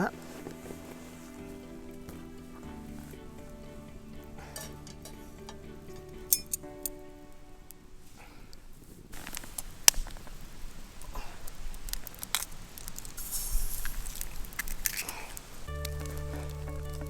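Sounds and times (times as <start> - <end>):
gear rustling and crackling: 7.7 - 17.0
brief hiss: 13.2 - 14.1.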